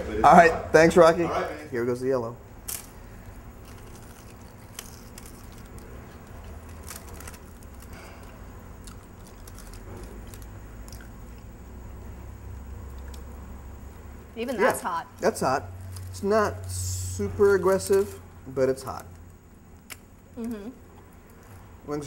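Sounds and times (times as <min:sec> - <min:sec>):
low background hum: 0:00.0 - 0:22.0
people chewing crunchy food: 0:02.7 - 0:14.8.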